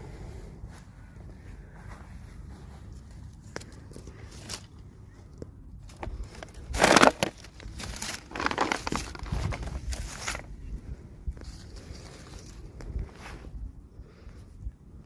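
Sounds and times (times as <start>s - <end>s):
plastic packaging crinkling: 5.9s - 10.5s.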